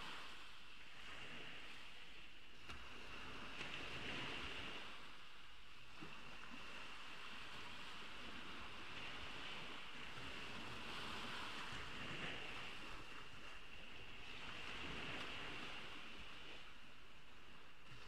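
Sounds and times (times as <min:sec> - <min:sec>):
ocean waves washing ashore: 0:00.0 - 0:18.0.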